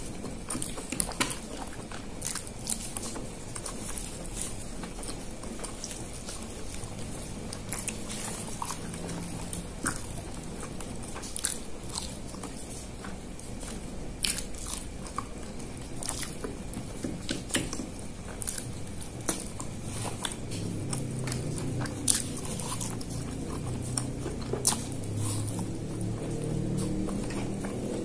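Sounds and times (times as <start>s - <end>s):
person chewing: 0.0s - 28.0s.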